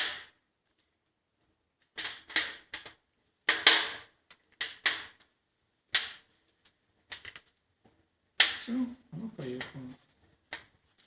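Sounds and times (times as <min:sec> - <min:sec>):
sharp cracks from fireplace firebox: 0:00.0 - 0:00.9, 0:01.8 - 0:07.6, 0:08.4 - 0:08.8, 0:09.5 - 0:11.0.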